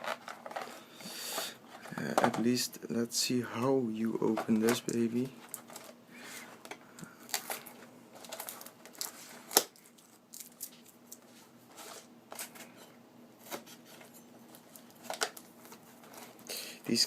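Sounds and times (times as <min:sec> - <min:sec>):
packaging crinkling: 0:06.6 - 0:12.7.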